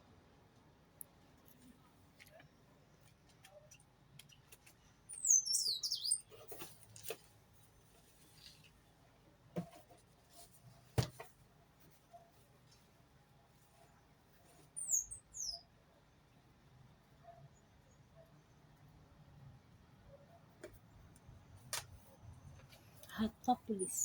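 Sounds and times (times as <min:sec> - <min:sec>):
bird squeaky chirps: 0:05.1 - 0:06.3, 0:14.8 - 0:15.6, 0:23.7 - 0:24.0.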